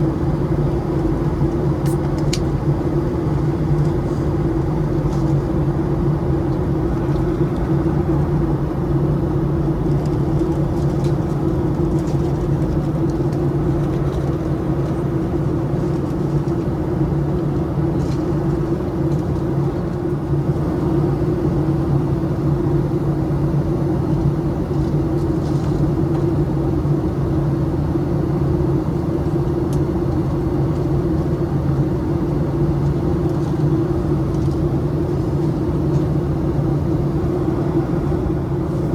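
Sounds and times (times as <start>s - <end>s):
airplane cabin engine drone: 0.0s - 38.9s
airflow around fuselage: 33.0s - 38.9s.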